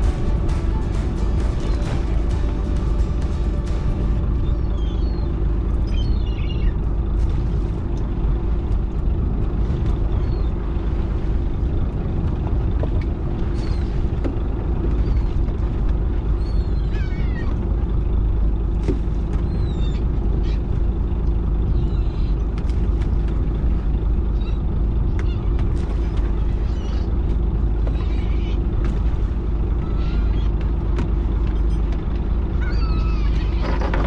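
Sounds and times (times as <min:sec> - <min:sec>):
boat engine rumbling: 0:00.0 - 0:34.0
birds calling: 0:00.2 - 0:07.2, 0:16.2 - 0:22.9, 0:23.8 - 0:33.9.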